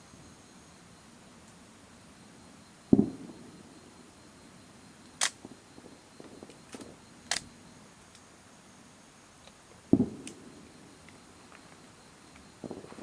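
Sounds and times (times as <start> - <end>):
sharp clicks: 6.4 - 7.5
faint ticks: 11.0 - 13.0.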